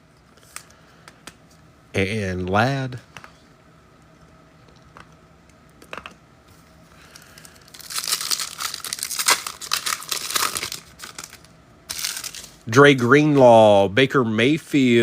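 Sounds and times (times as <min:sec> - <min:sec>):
wrappers tearing and crinkling: 0:07.1 - 0:12.6.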